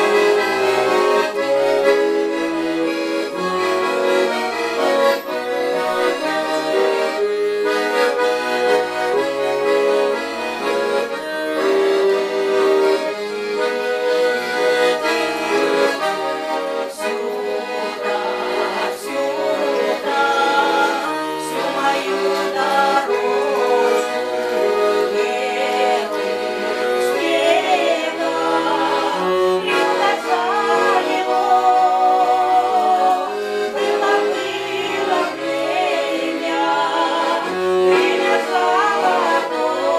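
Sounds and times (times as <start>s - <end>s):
accordion playing: 0.0s - 39.9s.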